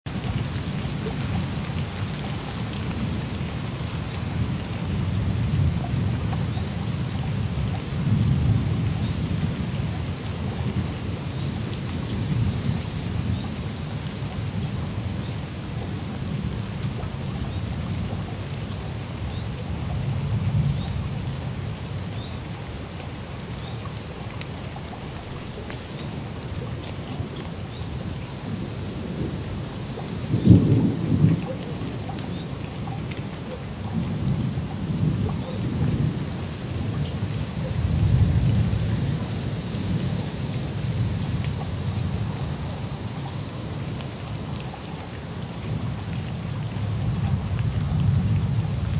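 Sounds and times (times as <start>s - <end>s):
steady rain: 0.0s - 48.9s
low thunder rumbling: 27.9s - 33.1s, 33.8s - 43.0s.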